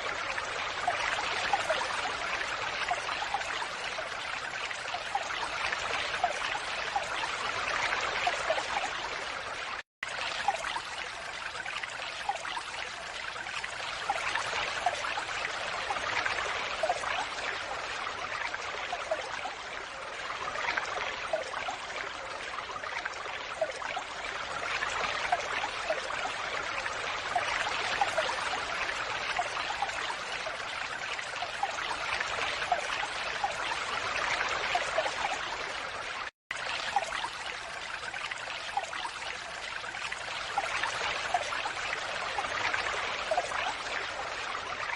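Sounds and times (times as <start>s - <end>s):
water splashing and trickling: 0.0s - 44.9s.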